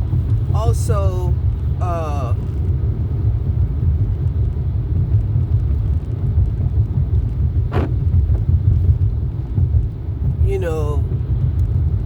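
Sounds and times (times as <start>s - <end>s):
car road rumble inside cabin: 0.0s - 12.0s.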